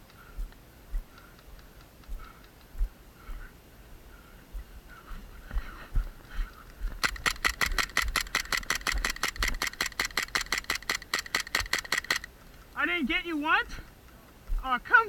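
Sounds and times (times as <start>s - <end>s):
airsoft gun rapid firing: 7.0s - 12.3s.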